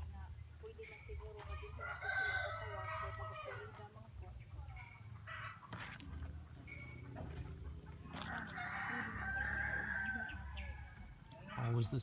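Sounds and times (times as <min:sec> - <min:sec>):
rooster crowing: 0:08.2 - 0:10.5.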